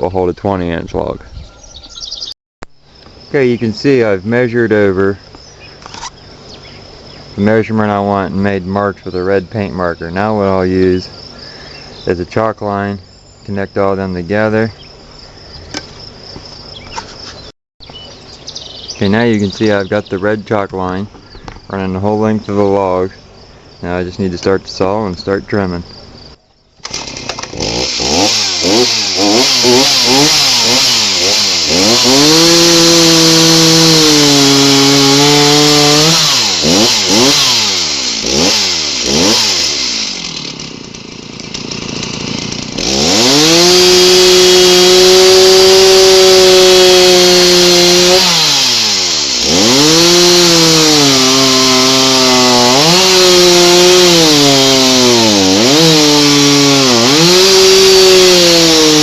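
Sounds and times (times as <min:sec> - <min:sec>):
chainsaw cutting log: 0:05.7 - 0:07.1, 0:26.8 - 0:59.0.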